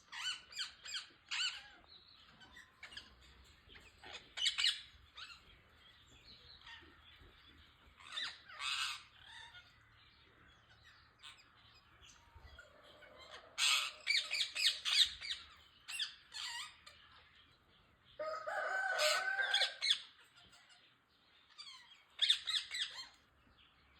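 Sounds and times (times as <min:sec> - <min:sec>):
parrots squawking and chattering: 0:00.0 - 0:17.6, 0:18.2 - 0:23.5.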